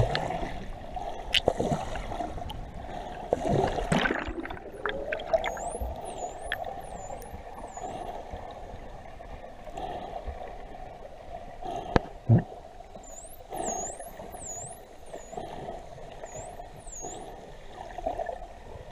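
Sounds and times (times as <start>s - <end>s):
dolphins whistling underwater: 4.8s - 8.2s, 12.9s - 18.0s.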